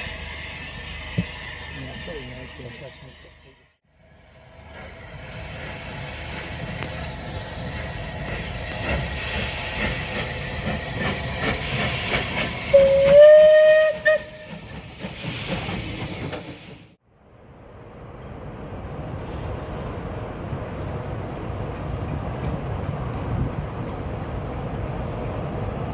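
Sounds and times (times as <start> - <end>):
train rumbling: 0.0 - 25.9
locomotive whistle blast: 12.6 - 14.6.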